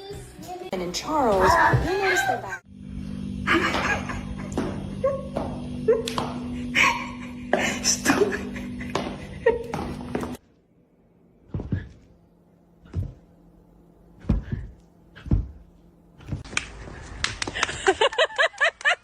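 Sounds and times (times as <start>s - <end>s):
faint hum: 2.0s - 18.7s
dull thumps: 11.5s - 12.1s, 12.9s - 13.3s, 14.2s - 16.5s.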